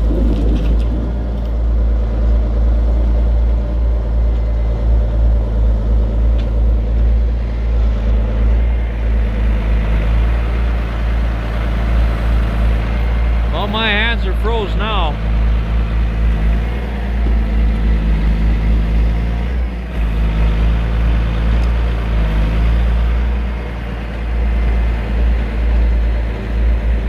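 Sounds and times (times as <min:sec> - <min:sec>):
diesel truck engine humming: 0:07.2 - 0:27.0.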